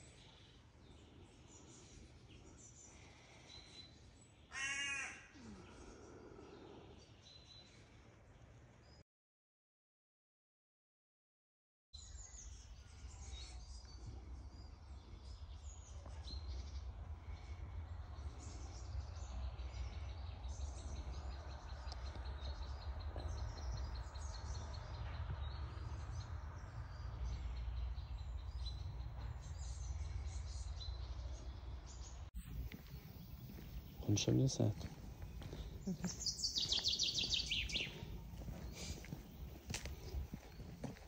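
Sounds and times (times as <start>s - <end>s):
steady low rumble: 14.1s - 41.0s
birds chirping and calling: 18.2s - 41.0s.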